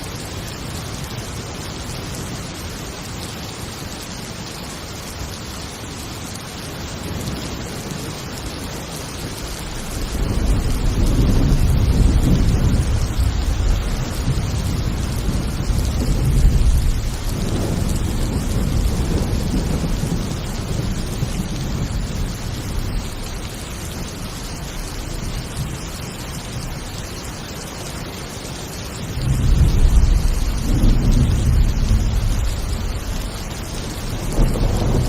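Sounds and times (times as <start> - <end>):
heavy rain hissing: 0.0 - 35.0
rolling thunder: 9.0 - 26.9, 29.1 - 35.0.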